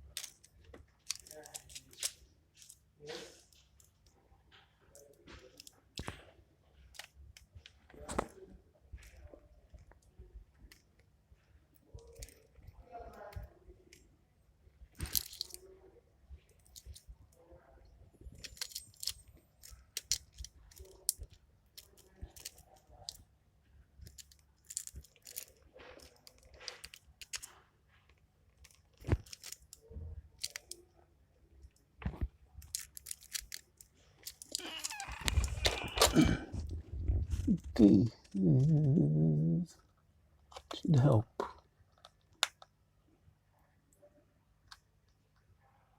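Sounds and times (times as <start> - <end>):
small clicks and taps handling parts: 24.0 - 29.8, 41.4 - 42.7.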